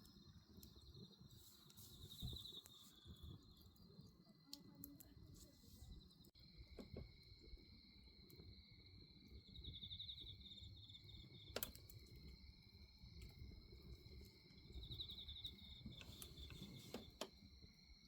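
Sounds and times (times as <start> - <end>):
crickets chirring: 0.0 - 18.0
pulsed insect trills: 5.8 - 18.0
bonfire crackling: 9.2 - 17.3
burning wood popping: 11.2 - 12.4, 13.0 - 17.3.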